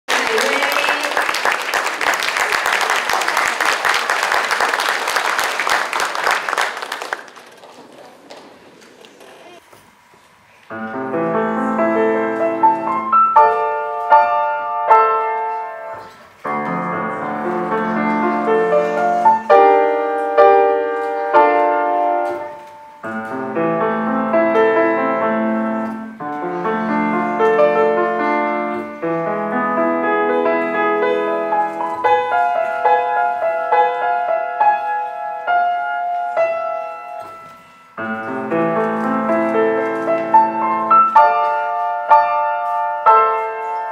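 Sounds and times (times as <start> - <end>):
solo piano playing: 10.7 - 43.9.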